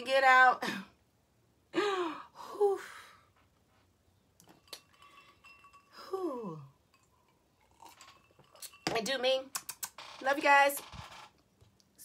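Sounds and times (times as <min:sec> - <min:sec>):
woman sighing: 0:01.7 - 0:03.3
faint clicks and clinks: 0:04.4 - 0:06.2, 0:06.8 - 0:11.0.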